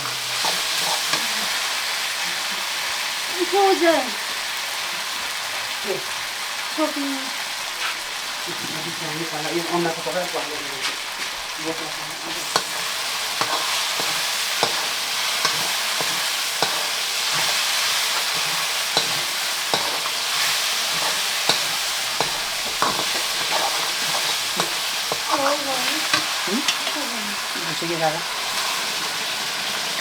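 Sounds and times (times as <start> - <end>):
spoon scraping a pan: 0.0 - 1.7, 12.2 - 27.5
curry sizzling in a pan: 0.0 - 30.0.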